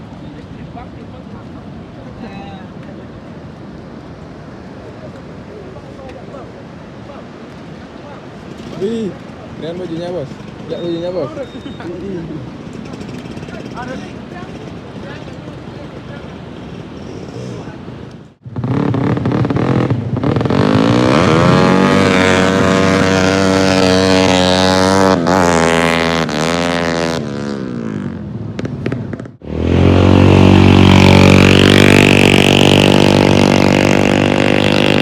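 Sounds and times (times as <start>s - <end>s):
racing engines revving: 18.6s - 28.2s, 28.8s - 35.0s.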